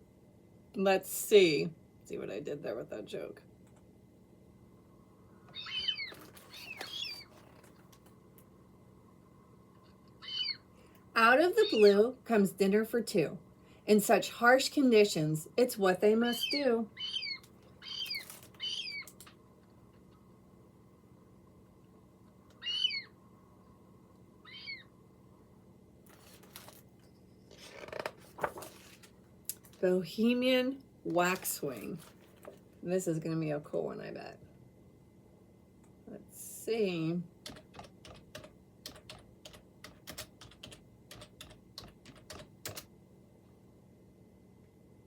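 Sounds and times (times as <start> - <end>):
gull calls: 5.5 - 7.3, 10.2 - 10.6, 16.4 - 19.1, 22.6 - 23.1, 24.4 - 24.9
handling rustle: 26.1 - 29.8, 31.3 - 32.7
faint keyboard typing: 37.4 - 42.9.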